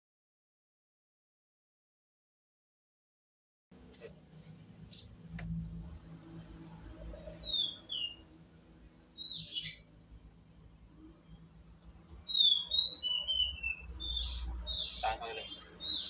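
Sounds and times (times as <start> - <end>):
small bird chirping: 7.1 - 8.3, 9.1 - 16.0.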